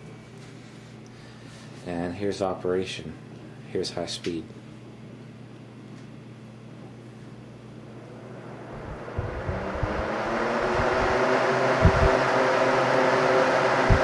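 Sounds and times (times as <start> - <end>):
box fan humming: 4.6 - 14.0
air buffeting thumps: 8.7 - 12.3, 13.8 - 14.0.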